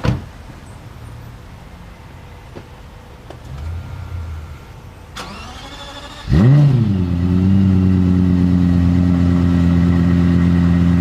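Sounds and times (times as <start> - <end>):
faint rising whine: 3.4 - 5.4
car engine firing: 5.1 - 10.8.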